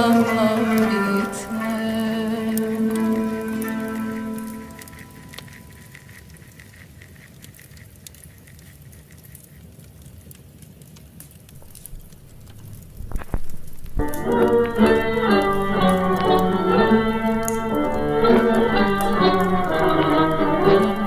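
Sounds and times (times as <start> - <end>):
instrumental music: 0.0 - 5.8, 14.0 - 21.0
log fire crackling: 0.0 - 21.0
soft steady hiss: 0.0 - 21.0.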